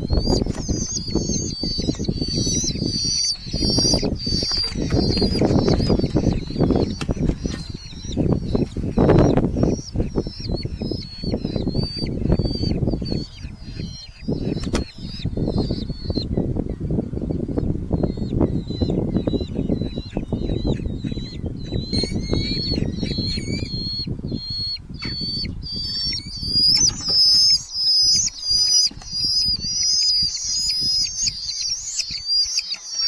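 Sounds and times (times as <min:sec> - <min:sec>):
falcon chicks calling: 0:00.0 - 0:33.0
wings flapping: 0:03.6 - 0:10.1.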